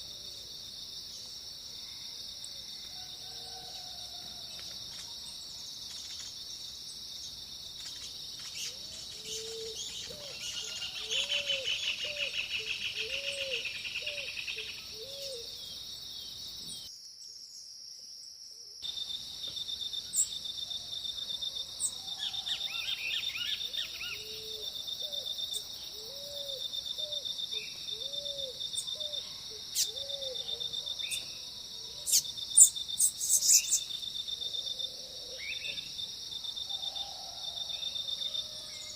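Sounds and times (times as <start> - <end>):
crickets droning: 0.0 - 38.9
birds chirping and trilling: 7.2 - 16.9, 32.1 - 33.9
bird giving low hooting notes: 8.6 - 15.6, 21.8 - 31.2.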